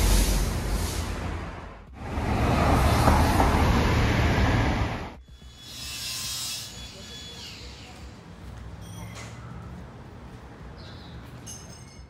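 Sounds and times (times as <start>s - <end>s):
train crossing steel bridge: 0.0s - 5.2s.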